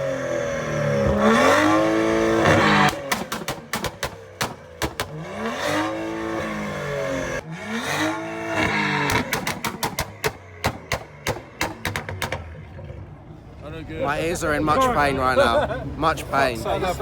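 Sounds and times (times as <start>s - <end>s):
car engine revving: 0.0s - 13.6s
exhaust cracks: 0.6s - 13.6s.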